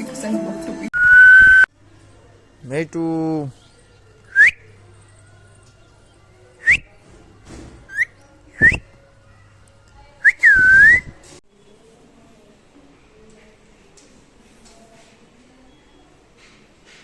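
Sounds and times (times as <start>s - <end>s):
rising whistles: 1.0s - 1.7s, 10.3s - 11.2s.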